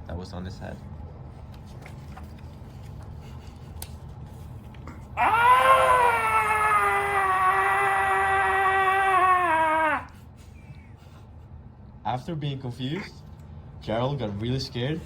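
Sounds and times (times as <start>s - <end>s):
person screaming in fright: 5.2s - 10.2s.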